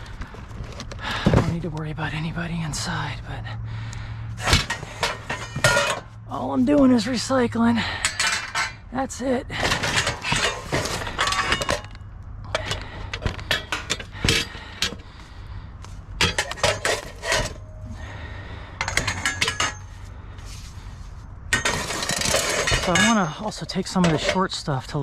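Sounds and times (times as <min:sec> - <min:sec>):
scrap metal clanking: 0:04.3 - 0:15.2, 0:16.1 - 0:25.0.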